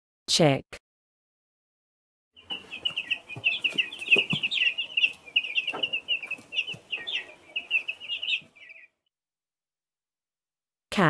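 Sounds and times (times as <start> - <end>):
chicks peeping: 2.4 - 9.0
soft knocks: 2.5 - 7.2.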